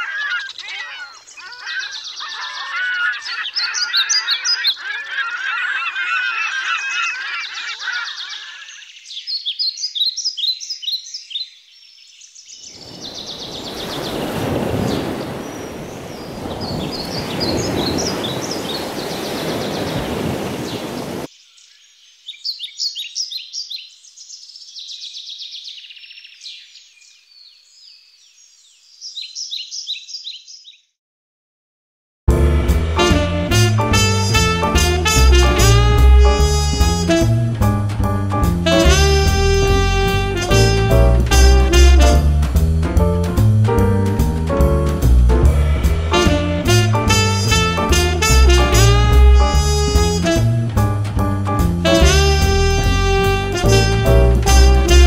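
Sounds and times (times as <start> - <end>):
small birds chirping: 0.0 - 31.0
loud steady rushing noise: 32.3 - 33.2, 45.0 - 47.4
goose-like honking: 32.6 - 37.5, 38.7 - 42.2, 45.5 - 50.7, 51.8 - 55.0.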